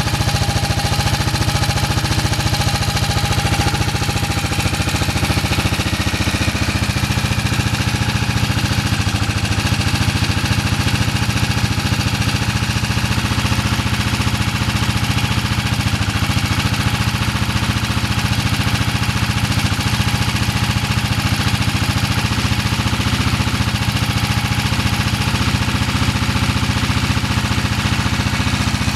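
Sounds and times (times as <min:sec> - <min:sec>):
single-cylinder engine thumping: 0:00.0 - 0:28.9.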